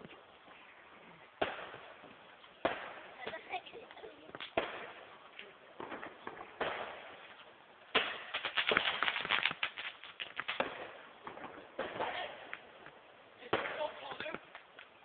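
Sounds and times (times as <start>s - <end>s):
fireworks crackling pops: 0.0s - 15.0s
firework bang: 1.4s - 3.5s, 4.4s - 5.2s, 5.8s - 7.3s, 7.9s - 12.6s.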